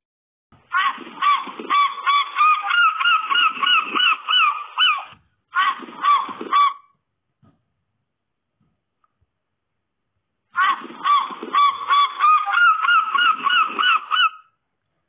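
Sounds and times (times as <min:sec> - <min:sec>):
goose honking: 0:00.8 - 0:06.8, 0:10.6 - 0:14.4.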